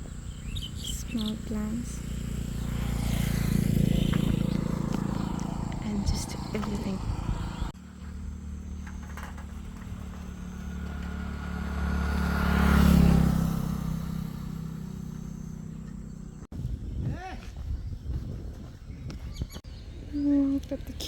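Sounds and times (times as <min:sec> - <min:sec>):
vehicle engine passing by: 0:00.0 - 0:16.5.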